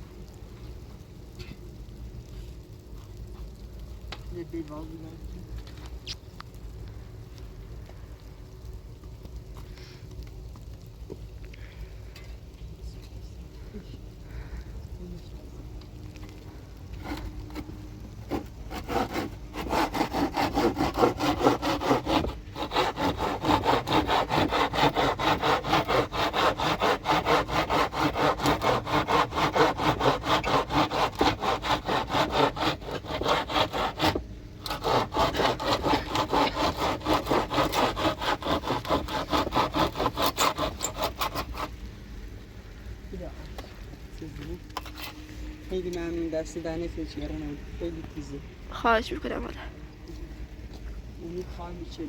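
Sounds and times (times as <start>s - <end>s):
hand saw cutting wood: 17.0s - 41.7s.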